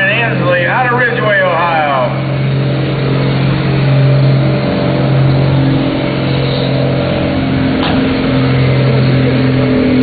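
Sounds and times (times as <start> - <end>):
truck engine at high revs: 0.0 - 10.0.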